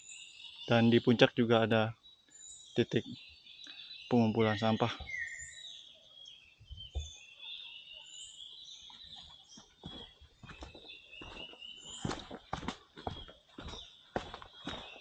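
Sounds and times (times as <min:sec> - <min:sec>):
birds chirping: 0:00.0 - 0:15.0
footsteps on forest trail: 0:08.6 - 0:15.0.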